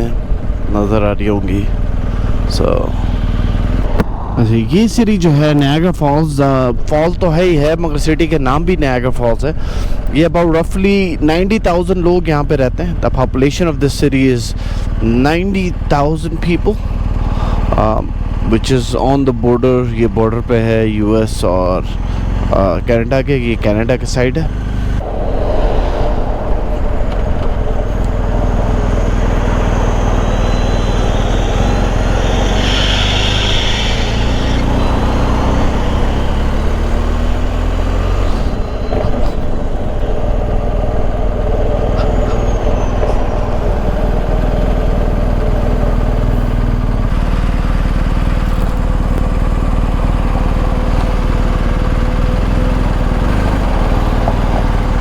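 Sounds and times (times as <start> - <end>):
motorcycle engine running: 0.0 - 4.0, 27.7 - 55.0
wind rushing over microphone: 0.0 - 8.8, 24.4 - 55.0.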